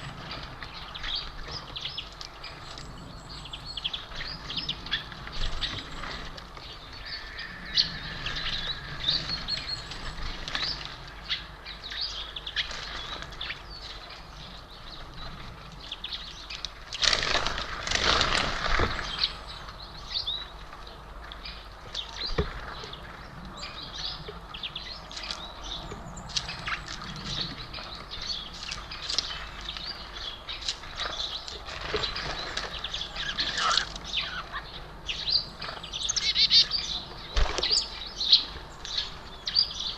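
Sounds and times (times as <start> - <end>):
small birds chirping: 0.0 - 39.9
wings flapping: 17.0 - 19.3.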